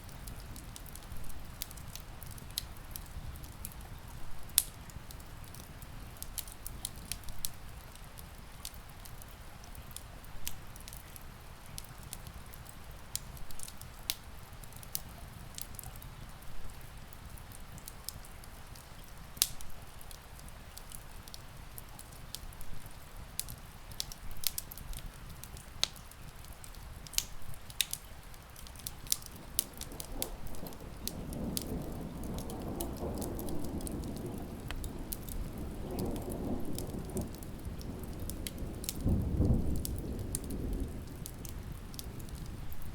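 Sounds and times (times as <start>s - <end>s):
rain hissing: 0.0s - 42.9s
wood fire crackling and popping: 0.0s - 42.9s
distant thunder rumbling: 29.4s - 42.9s.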